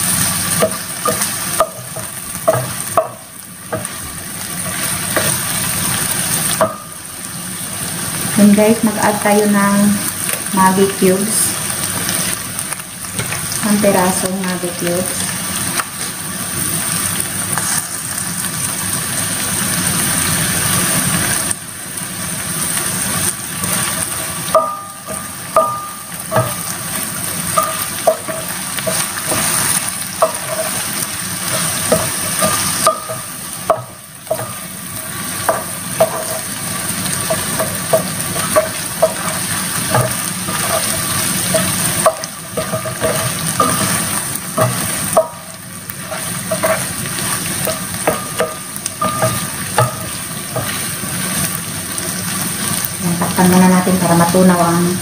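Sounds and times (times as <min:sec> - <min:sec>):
food sizzling in a pan: 0:00.0 - 0:55.0
spatula scraping and knocking pan: 0:00.5 - 0:05.6, 0:23.6 - 0:51.6.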